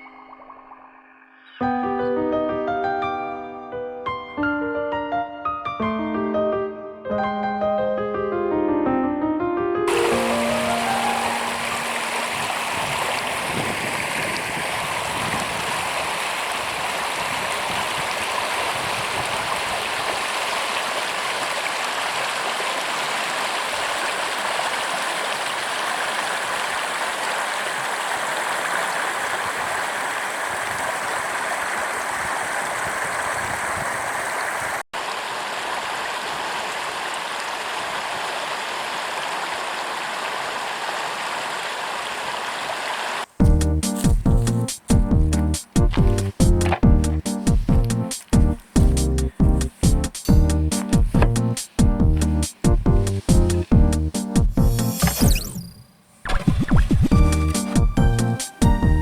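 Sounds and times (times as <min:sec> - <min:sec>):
river running over stones: 0:09.9 - 0:55.5.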